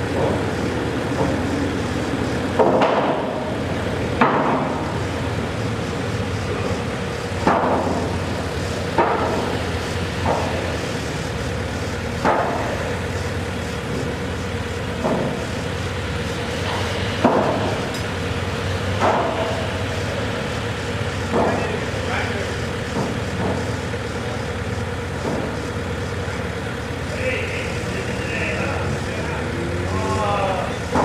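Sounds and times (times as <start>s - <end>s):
engine humming: 0.0s - 31.0s
hammer blows with metallic ring: 17.7s - 20.1s.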